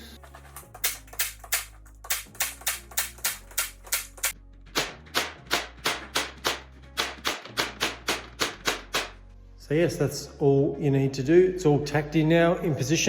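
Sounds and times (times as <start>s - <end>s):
background music: 0.0s - 13.0s
pin nailer firing: 0.8s - 9.2s.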